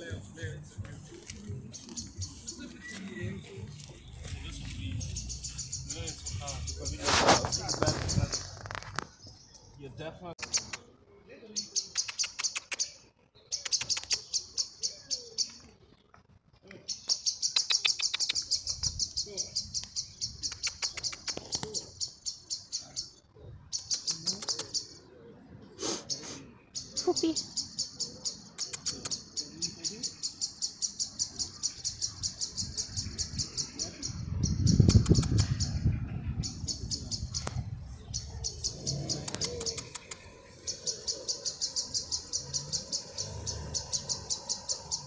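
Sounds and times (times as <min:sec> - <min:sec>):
bird harsh rapid calls: 0:04.1 - 0:09.2, 0:16.9 - 0:25.1, 0:25.8 - 0:45.0.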